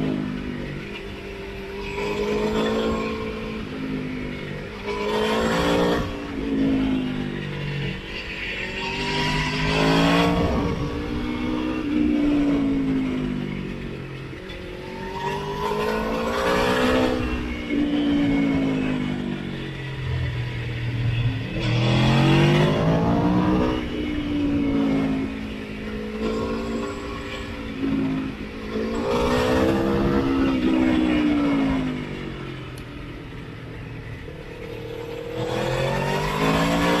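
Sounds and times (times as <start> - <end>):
motorcycle engine revving: 0.0 - 37.0
wind rush: 9.8 - 12.6.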